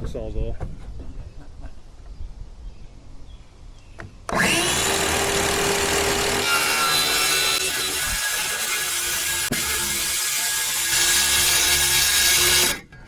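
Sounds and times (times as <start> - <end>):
reciprocating saw cutting: 4.3 - 12.9.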